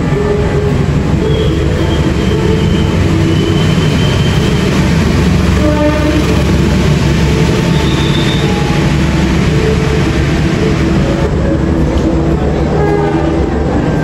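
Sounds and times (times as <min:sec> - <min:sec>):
passenger train rumbling: 0:00.0 - 0:14.0.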